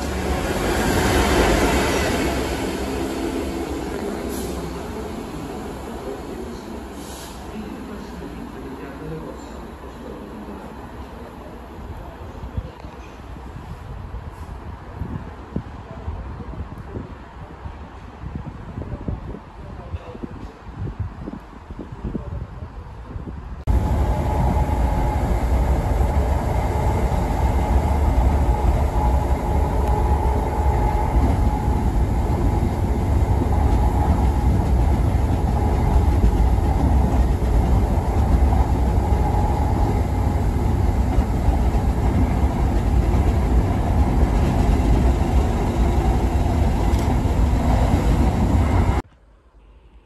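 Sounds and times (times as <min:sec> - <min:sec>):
train wheels on rails rumbling: 0:00.0 - 0:08.3, 0:23.6 - 0:49.0.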